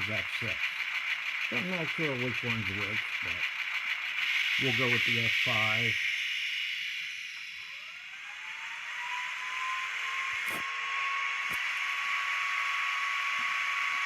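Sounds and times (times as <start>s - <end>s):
constant hiss: 0.0s - 7.8s
model locomotive whine: 0.0s - 14.0s.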